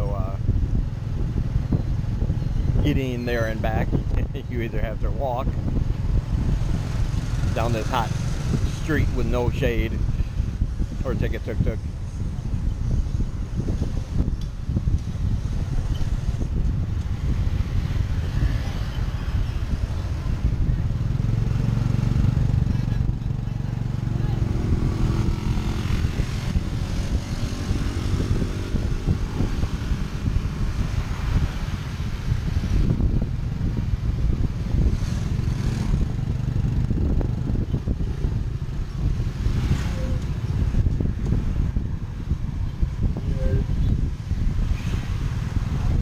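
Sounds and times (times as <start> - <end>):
road and traffic noise: 0.0 - 46.0
rumble of riding vehicle: 0.0 - 46.0.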